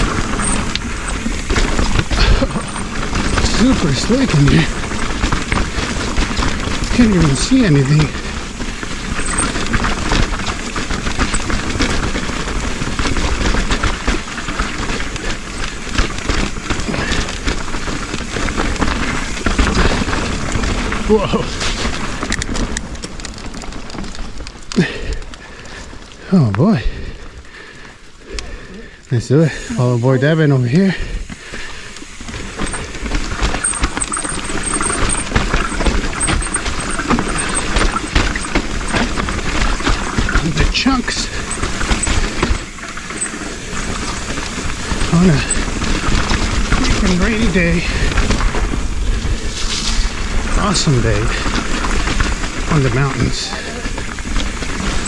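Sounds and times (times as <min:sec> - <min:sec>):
bike knocks and rattles: 0:00.0 - 0:26.1, 0:31.3 - 0:55.0
bike tyres rolling on dirt: 0:00.0 - 0:55.0
tyres knocking over rocks: 0:32.4 - 0:49.0.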